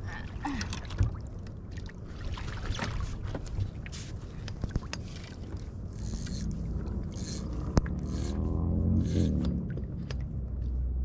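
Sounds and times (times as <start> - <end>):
rumble of water: 0.0 - 11.0
wind: 0.0 - 11.0
knocks and scrapes on a kayak: 2.8 - 5.7.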